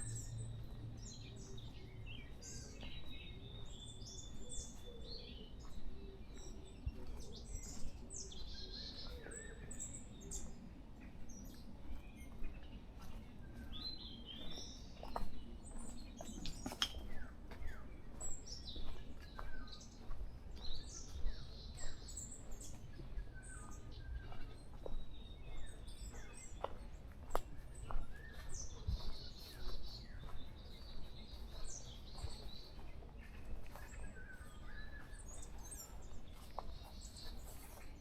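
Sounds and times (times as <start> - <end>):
birds chirping and whistling: 0.0 - 10.7, 11.3 - 37.9.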